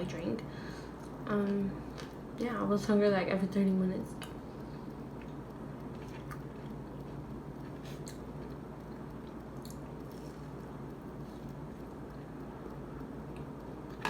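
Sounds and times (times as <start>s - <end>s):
person chewing food: 4.2s - 14.0s.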